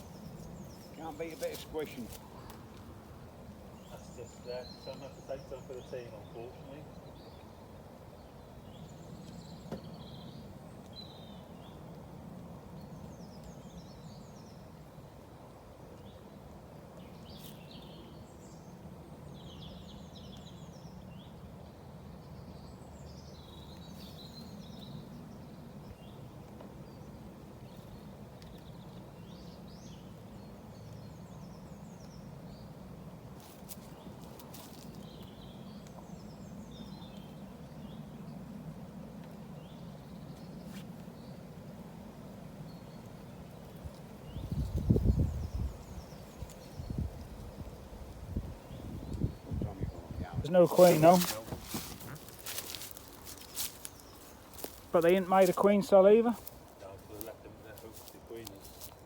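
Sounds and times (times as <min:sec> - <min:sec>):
small birds chirping: 0:00.0 - 0:59.0
honeybees buzzing: 0:48.6 - 0:57.9.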